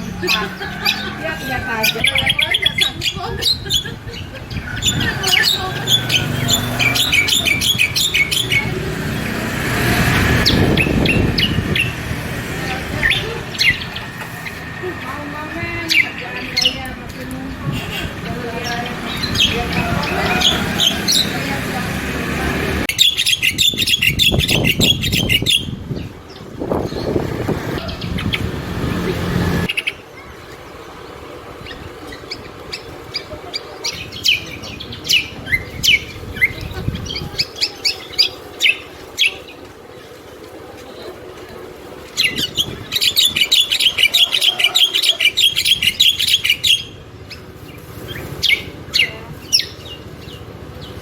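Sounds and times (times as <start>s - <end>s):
songbird chirping: 0.0s - 51.0s
rush of noise: 19.0s - 33.3s.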